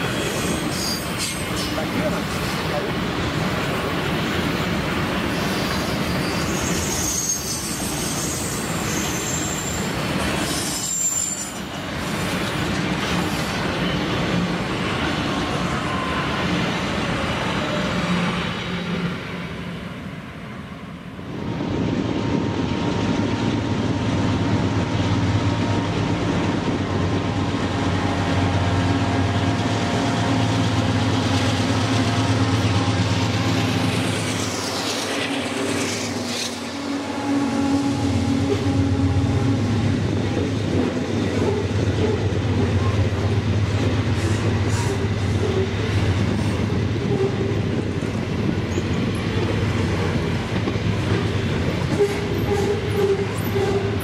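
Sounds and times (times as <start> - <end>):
high-pitched wheel squeal: 0.2 - 1.7, 5.5 - 11.7
freight wagons rumbling over rails: 21.3 - 54.0.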